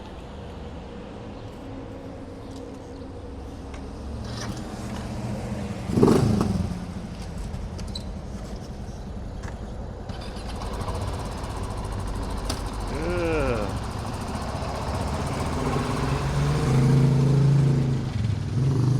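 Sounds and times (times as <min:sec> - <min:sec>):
vehicle engines running: 0:00.0 - 0:18.9
engine surging loudly: 0:10.1 - 0:18.9.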